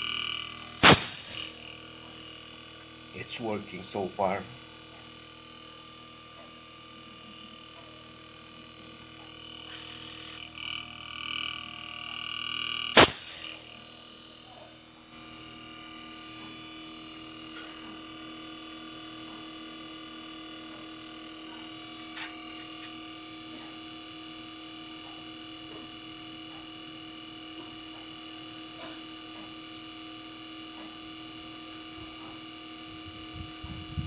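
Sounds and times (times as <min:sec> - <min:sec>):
air conditioner humming: 0:00.0 - 0:23.4
high whining tones: 0:00.0 - 0:23.5.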